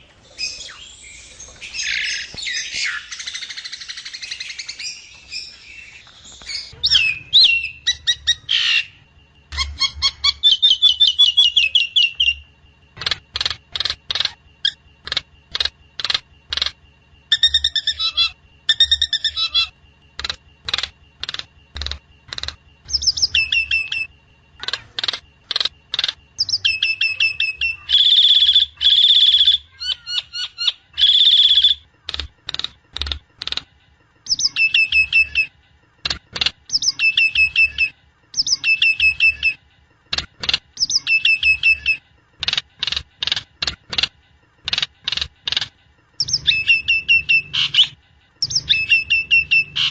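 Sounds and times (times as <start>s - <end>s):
harsh drawn-out bird calls: 0.0s - 39.6s, 44.6s - 49.9s
myna whistling and trilling: 0.2s - 12.4s, 26.4s - 31.8s, 46.2s - 49.9s.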